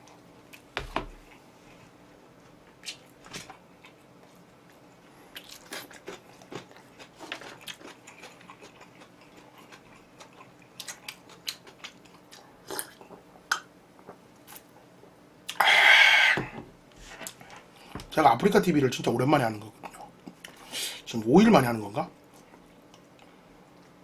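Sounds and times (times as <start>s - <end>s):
chewing crispy chicken: 2.7s - 13.2s.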